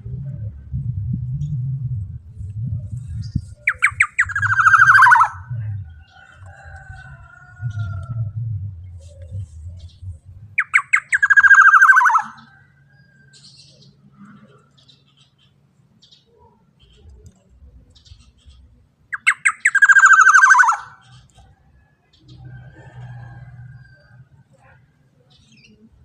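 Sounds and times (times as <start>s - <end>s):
bird harsh rasping call: 3.7s - 5.5s, 10.6s - 12.6s, 19.1s - 21.3s.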